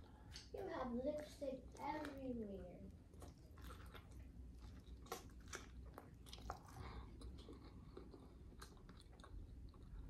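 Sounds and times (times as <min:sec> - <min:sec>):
person chewing pizza: 0:00.0 - 0:10.0.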